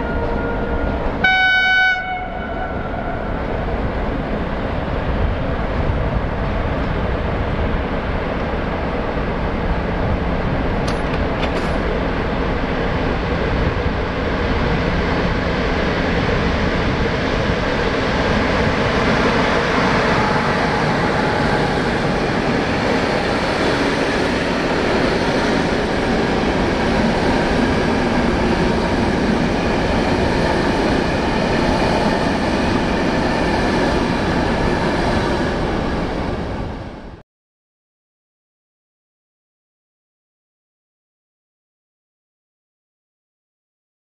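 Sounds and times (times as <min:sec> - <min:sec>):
train wheels on rails: 0:02.8 - 0:37.2.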